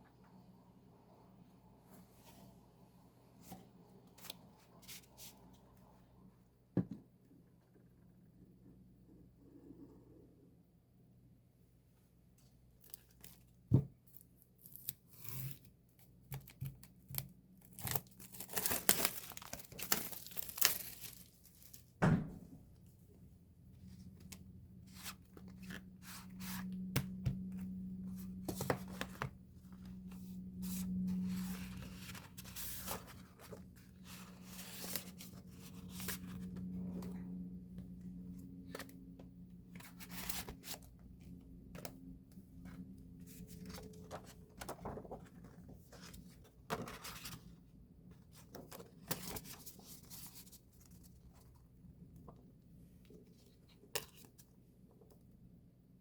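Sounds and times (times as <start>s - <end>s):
packaging crinkling and rustling: 17.6s - 21.8s.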